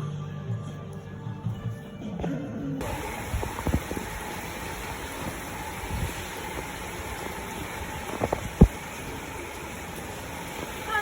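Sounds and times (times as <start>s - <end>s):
wind gusts buffeting microphone: 2.8s - 11.0s.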